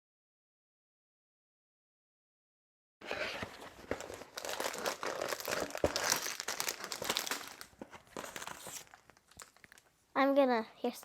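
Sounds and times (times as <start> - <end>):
packaging crinkling and rustling: 3.0 - 9.9.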